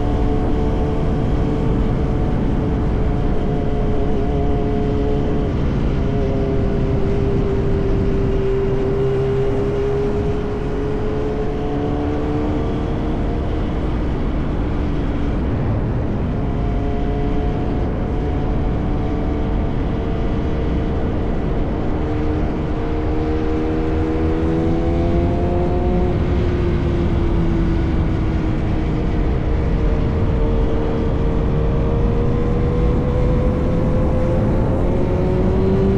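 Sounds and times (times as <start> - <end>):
motorcycle engine cruising: 0.0 - 15.3, 22.5 - 35.9
wind and road noise: 0.0 - 35.9.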